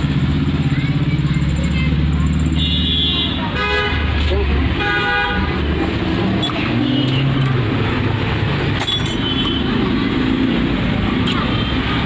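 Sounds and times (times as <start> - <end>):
street traffic engines running: 0.0 - 12.0
sharp metallic clink: 8.8 - 9.5.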